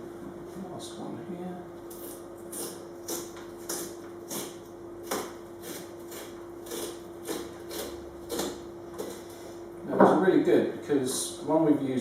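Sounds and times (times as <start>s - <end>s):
knife scraping pumpkin flesh: 1.9s - 9.7s.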